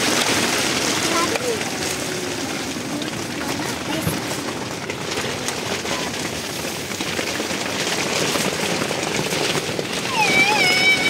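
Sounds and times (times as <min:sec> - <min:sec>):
steady rain pattering: 0:00.0 - 0:11.0.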